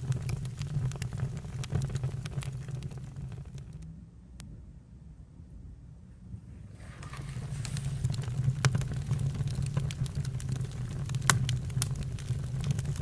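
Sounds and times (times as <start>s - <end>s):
campfire crackling and popping: 0.0s - 3.8s, 7.0s - 13.0s
low fire rumble: 0.0s - 4.4s, 6.2s - 13.0s.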